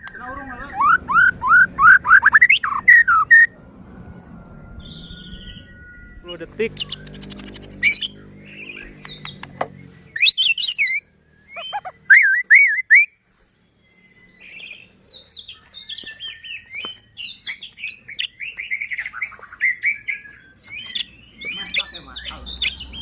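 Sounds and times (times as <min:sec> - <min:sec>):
bird singing whistled song: 0:00.0 - 0:03.5, 0:04.1 - 0:23.0
bird sharp clicks: 0:08.8 - 0:09.8.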